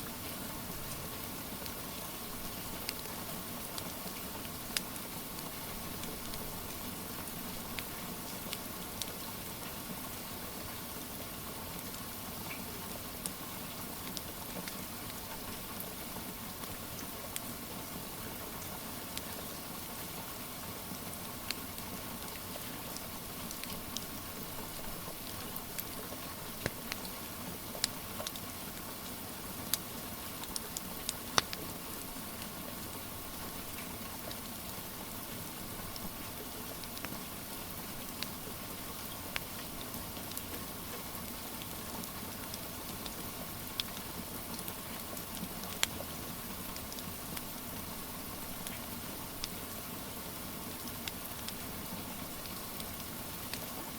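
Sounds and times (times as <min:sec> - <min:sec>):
steady rain hiss: 0:00.0 - 0:53.9
wood fire crackling: 0:00.1 - 0:09.2, 0:21.4 - 0:29.0, 0:29.7 - 0:32.5, 0:33.4 - 0:49.6.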